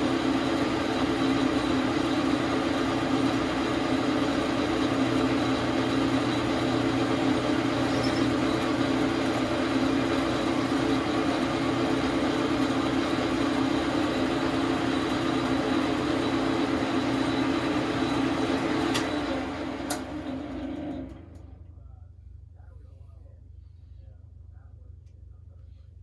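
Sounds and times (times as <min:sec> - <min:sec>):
lathe running: 0:00.0 - 0:21.5
faint low hum: 0:21.1 - 0:26.0.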